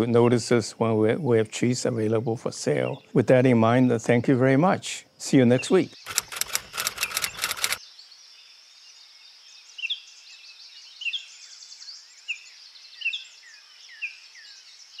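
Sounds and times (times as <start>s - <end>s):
birds chirping: 0.0s - 4.7s, 5.3s - 7.8s.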